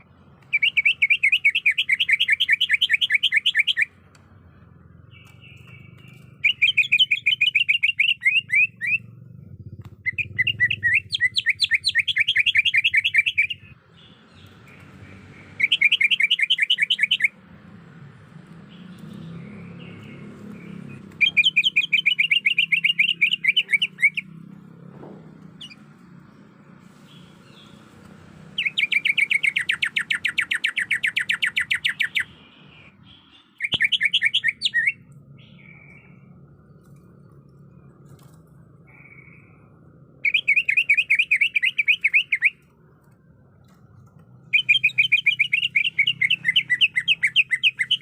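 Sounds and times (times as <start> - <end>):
bird fast chattering calls: 5.1 - 14.8, 28.6 - 36.2.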